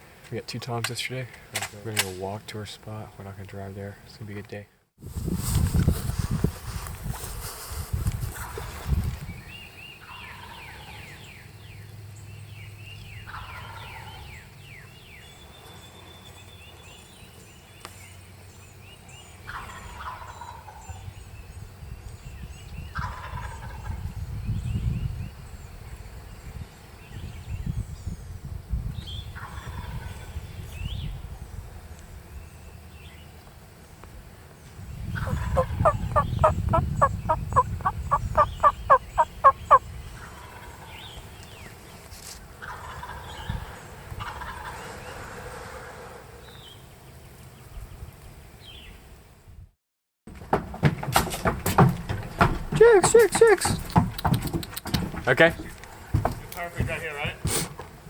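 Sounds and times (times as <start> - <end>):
faint songbird chirps: 34.6 - 42.0
wild turkey gobbling: 35.2 - 40.8.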